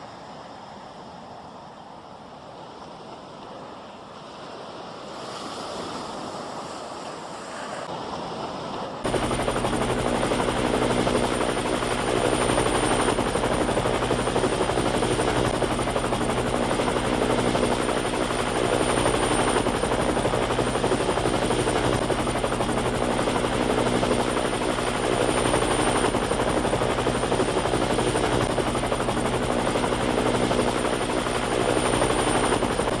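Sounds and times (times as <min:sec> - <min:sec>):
wind and sea rushing: 0:00.0 - 0:33.0
helicopter rotor beat: 0:09.0 - 0:33.0.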